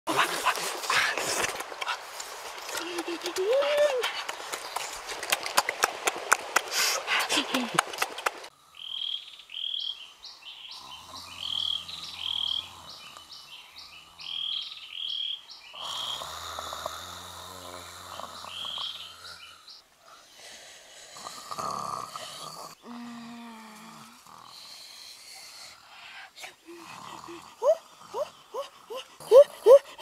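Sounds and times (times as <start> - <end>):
bird chirping: 8.7 - 16.2, 18.1 - 19.9.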